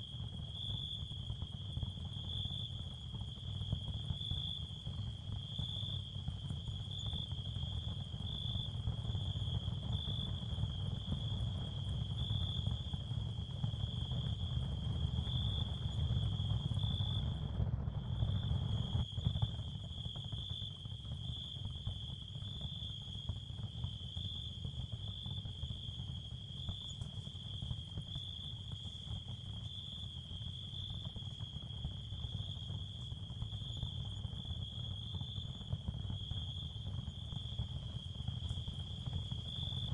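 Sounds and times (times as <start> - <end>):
crickets chirring: 18.2 - 39.9.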